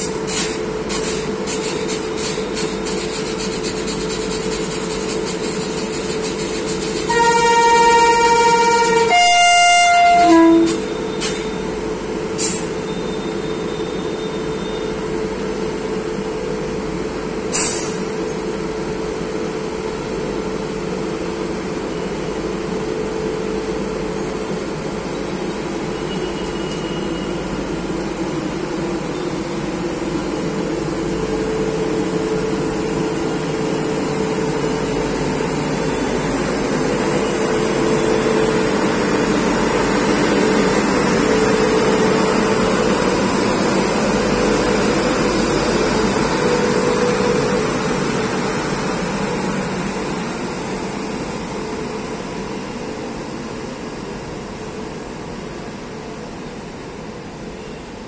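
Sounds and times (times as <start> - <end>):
train rumbling past: 0.0 - 58.0
train horn: 7.1 - 11.0.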